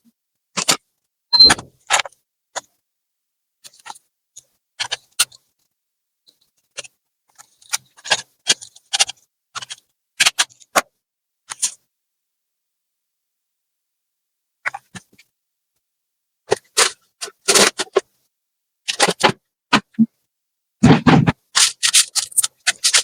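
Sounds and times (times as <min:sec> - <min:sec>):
tools and plastic parts clicking: 0:21.6 - 0:23.0.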